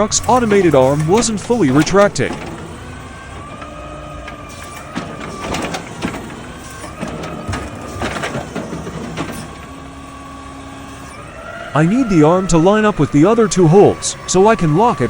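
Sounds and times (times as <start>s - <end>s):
sharp clanks and clicks: 0.0s - 11.4s
hydraulic arm whining: 0.0s - 15.0s
truck engine running: 0.0s - 15.0s.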